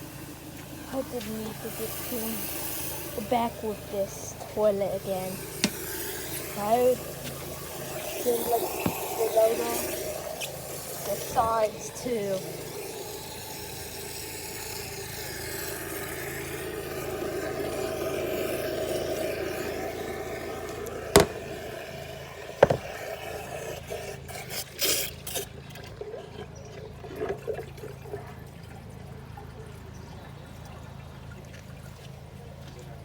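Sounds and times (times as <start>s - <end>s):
water running in a toilet: 0.0s - 33.0s
sharp knocks: 21.1s - 21.5s, 22.6s - 22.9s.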